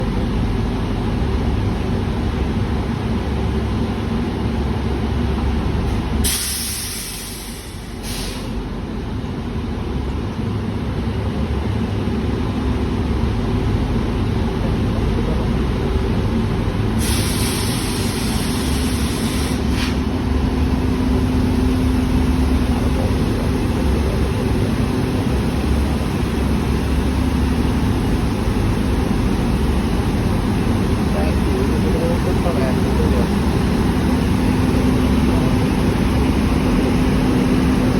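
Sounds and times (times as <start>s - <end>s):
train rumbling: 0.0s - 37.9s
air hiss bursts: 6.2s - 8.6s, 17.0s - 20.0s.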